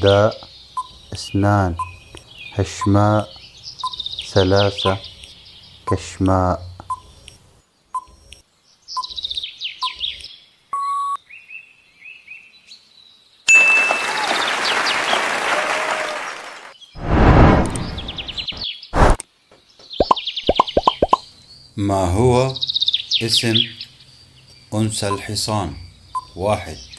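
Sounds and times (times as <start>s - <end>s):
bird-like chirps: 0.0s - 12.4s, 17.7s - 26.9s
deep burst of noise: 17.0s - 19.1s
rushing noise: 17.0s - 19.2s.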